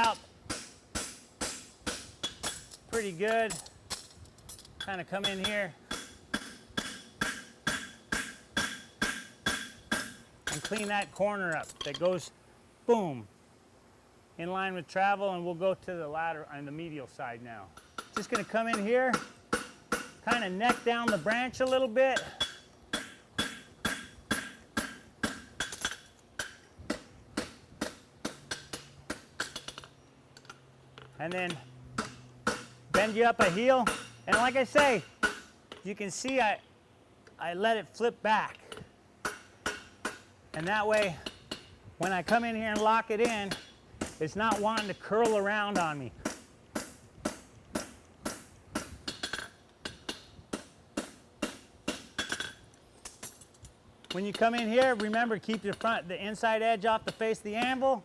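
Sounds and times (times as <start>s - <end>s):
hammer striking steel on anvil: 0.0s - 3.7s, 4.8s - 11.2s, 17.8s - 29.9s, 31.5s - 35.8s, 38.7s - 53.4s.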